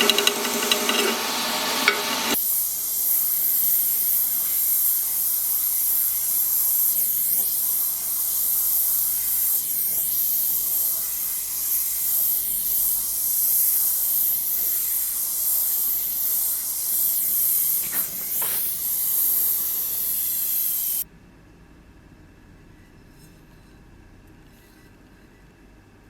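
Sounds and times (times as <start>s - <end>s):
loud steady hiss: 0.0s - 21.0s.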